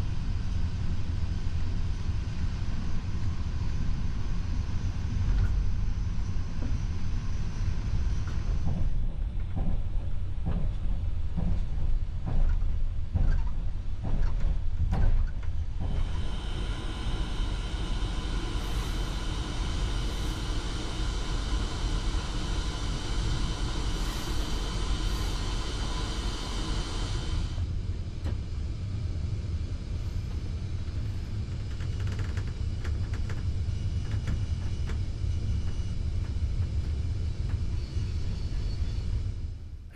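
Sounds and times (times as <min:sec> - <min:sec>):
train rumbling on track: 0:00.0 - 0:39.9
faint whining tones: 0:15.2 - 0:39.8.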